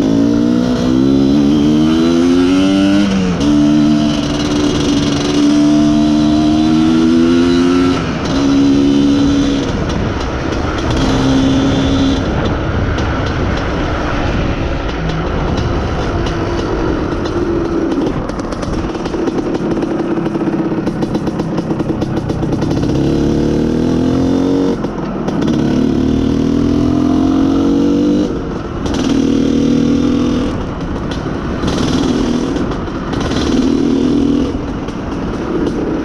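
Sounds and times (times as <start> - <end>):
wind on microphone: 0.0 - 25.5
two-stroke motorcycle engine: 0.0 - 36.0.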